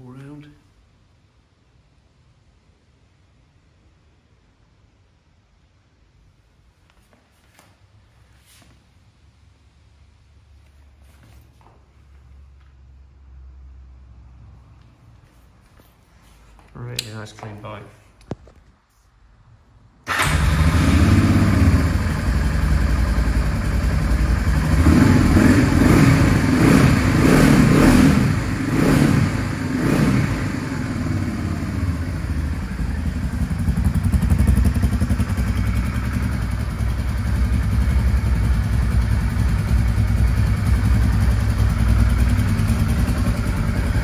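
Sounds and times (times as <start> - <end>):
motorcycle engine starting and idling: 20.0 - 44.0
engine revving blips: 24.4 - 32.5.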